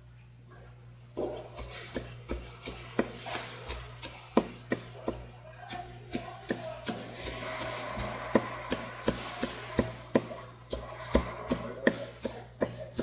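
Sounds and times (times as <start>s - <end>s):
steady low hum: 0.0s - 13.0s
knife chopping fish on cutting board: 1.3s - 7.1s, 10.2s - 13.0s.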